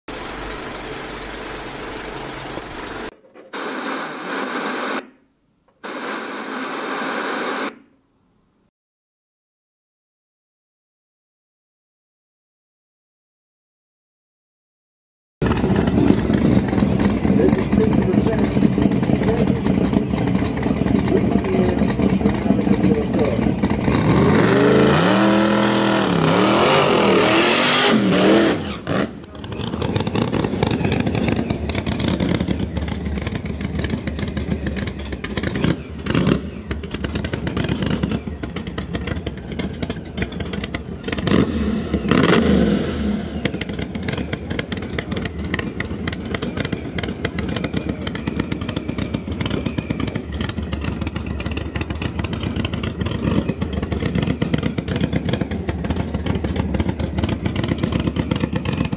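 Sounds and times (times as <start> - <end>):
rough crackling engine clatter: 0.1 - 3.2, 15.4 - 58.9
truck engine accelerating hard: 0.1 - 3.2, 15.4 - 58.9.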